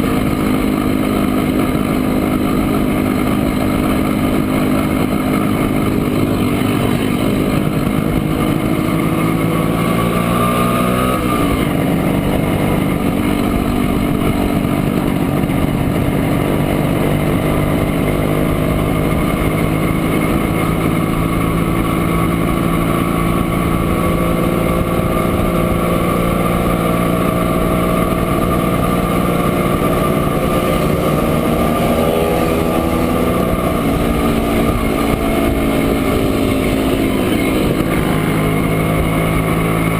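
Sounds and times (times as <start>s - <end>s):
two-stroke engine running: 0.0s - 39.9s.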